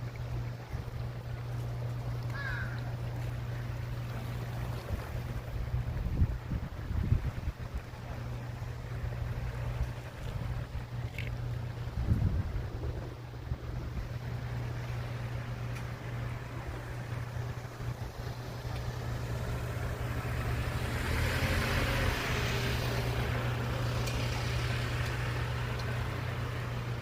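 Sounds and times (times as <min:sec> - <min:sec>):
road and traffic noise: 0:00.0 - 0:27.0
motorcycle engine and wind rumble: 0:04.4 - 0:27.0
wind noise on microphone: 0:04.8 - 0:07.9, 0:11.8 - 0:14.2.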